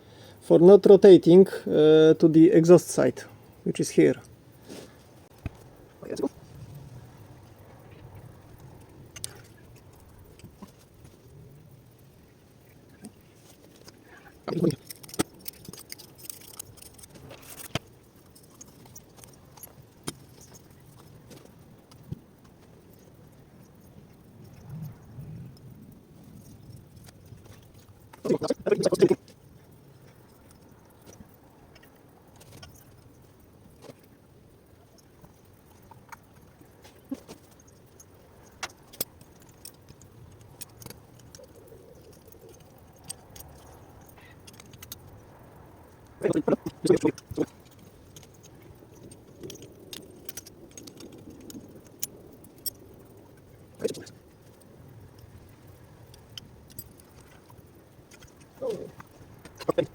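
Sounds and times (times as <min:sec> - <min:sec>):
metal parts clicking and clinking: 0:13.4 - 0:22.2, 0:26.3 - 0:34.1, 0:34.9 - 0:45.3, 0:45.9 - 0:59.9
metal parts rattling: 0:13.7 - 0:21.4.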